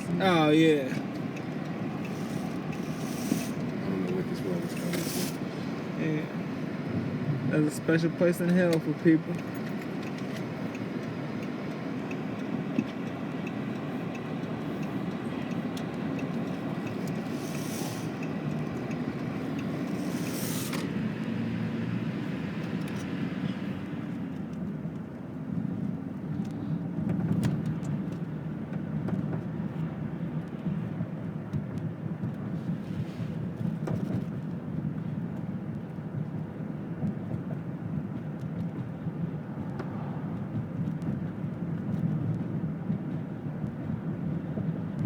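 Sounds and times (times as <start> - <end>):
engine and tyre rumble: 0.0 - 45.0
tyre hiss on wet road: 2.0 - 3.7, 4.7 - 5.6, 17.2 - 18.3, 19.8 - 20.9.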